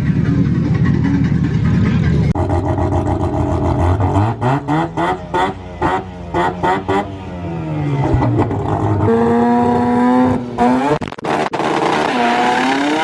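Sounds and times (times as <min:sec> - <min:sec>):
steady low rumble: 0:00.0 - 0:03.9
car engine revving: 0:00.0 - 0:13.0.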